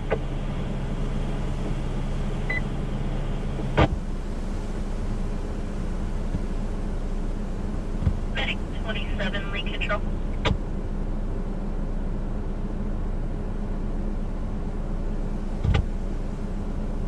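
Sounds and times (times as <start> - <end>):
low hum: 0.0 - 17.0
radio scanner hiss: 8.3 - 10.1.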